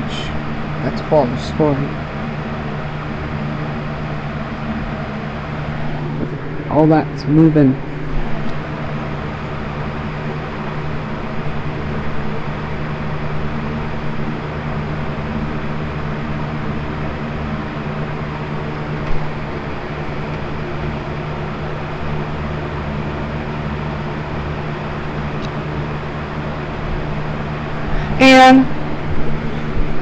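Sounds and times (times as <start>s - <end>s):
box fan running: 0.0s - 30.0s.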